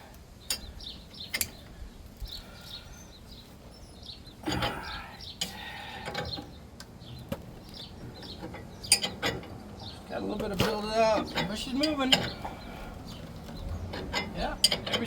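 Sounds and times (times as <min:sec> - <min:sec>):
small birds chirping: 0:00.0 - 0:15.0
sharp metallic clicks: 0:00.4 - 0:01.7, 0:04.5 - 0:15.0.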